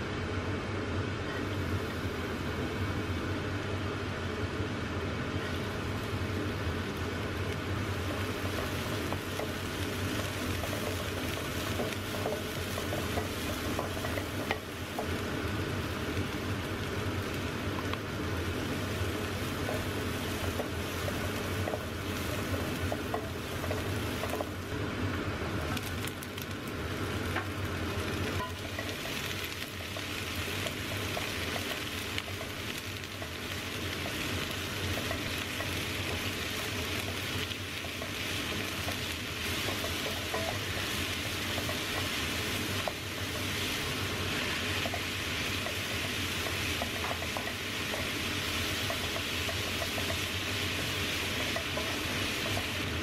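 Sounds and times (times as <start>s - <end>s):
food sizzling in oil: 4.9s - 53.0s
spatula scraping and tapping pan: 8.2s - 15.2s, 19.6s - 24.6s, 28.2s - 50.5s.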